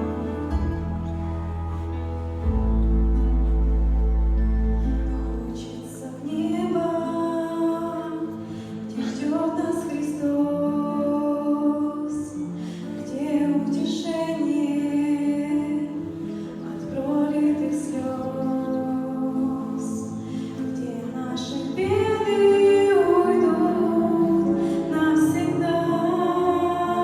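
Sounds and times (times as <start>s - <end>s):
deep low note: 0.0s - 5.5s
women singing in harmony: 5.0s - 27.0s.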